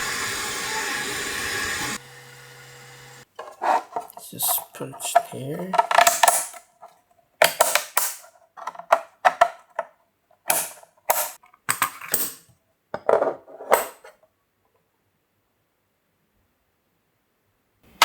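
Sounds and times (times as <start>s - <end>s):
plastic and metal parts clacking: 3.4s - 11.4s.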